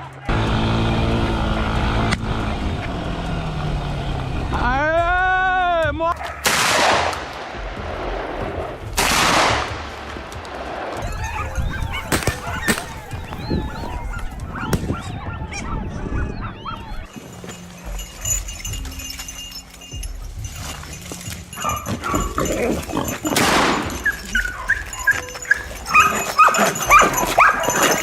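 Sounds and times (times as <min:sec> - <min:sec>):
dogs barking and yipping: 0:06.1 - 0:06.6, 0:11.0 - 0:28.0.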